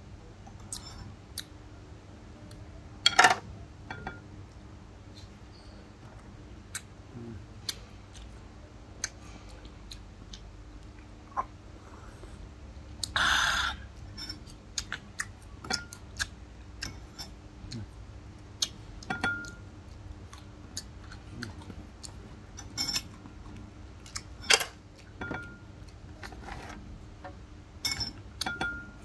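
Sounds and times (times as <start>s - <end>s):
person chewing eggs: 13.0s - 25.2s.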